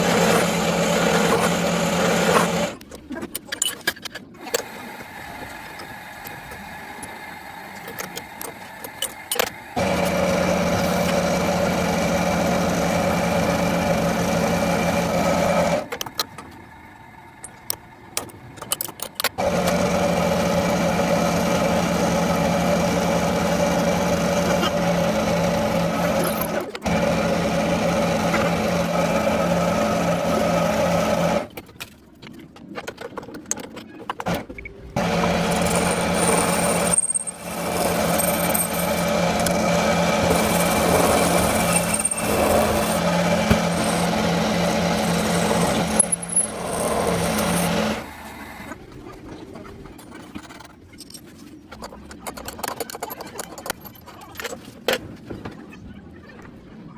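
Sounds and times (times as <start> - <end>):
metalworking machine humming: 0.0 - 2.8, 4.4 - 31.5, 34.3 - 49.0.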